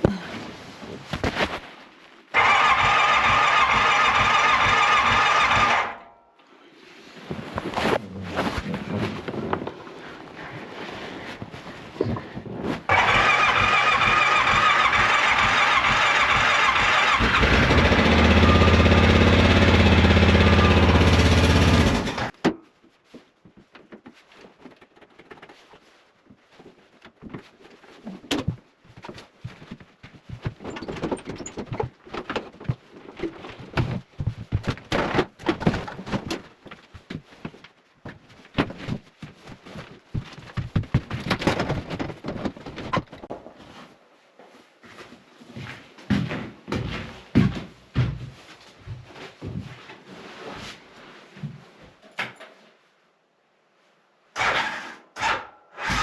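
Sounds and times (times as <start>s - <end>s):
engine turning over and running: 2.3s - 6.0s, 12.9s - 22.3s
irregular knocks and clatter: 23.2s - 43.7s.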